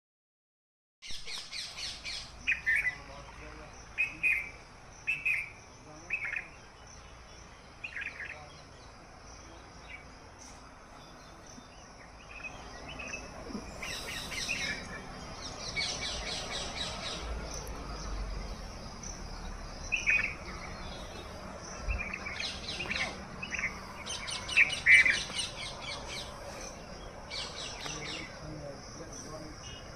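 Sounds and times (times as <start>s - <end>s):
birds calling: 1.0s - 29.9s.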